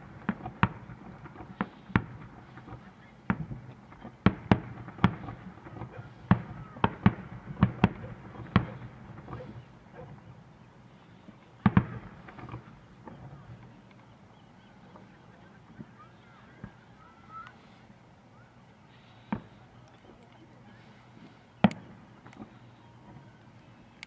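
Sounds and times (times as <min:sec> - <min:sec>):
fireworks bangs: 0:00.0 - 0:13.9, 0:14.7 - 0:17.8, 0:18.4 - 0:24.0
faint firework pops: 0:00.2 - 0:10.2, 0:11.4 - 0:13.9, 0:19.2 - 0:20.2, 0:21.2 - 0:23.2.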